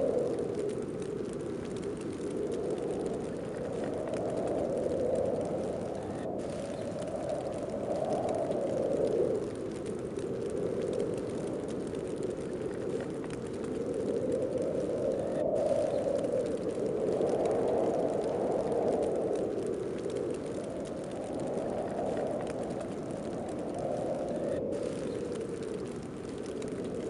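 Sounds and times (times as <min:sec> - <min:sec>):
howling snowstorm wind gusts: 0:00.0 - 0:27.0.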